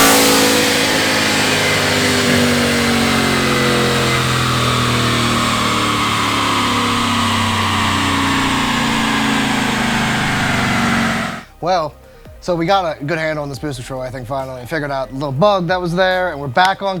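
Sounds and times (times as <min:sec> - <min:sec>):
engine winding down: 0:00.0 - 0:11.6.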